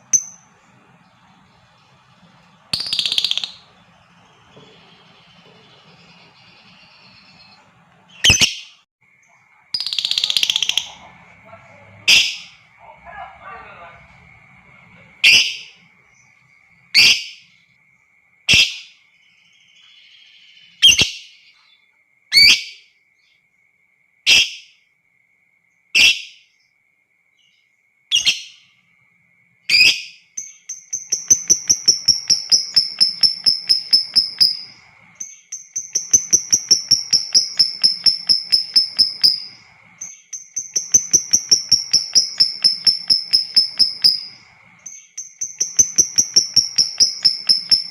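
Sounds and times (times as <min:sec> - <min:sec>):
bird chattering trills: 0:00.0 - 0:08.6, 0:09.8 - 0:15.9, 0:30.7 - 0:47.9
bird sharp chirps: 0:00.0 - 0:12.7, 0:29.7 - 0:47.9.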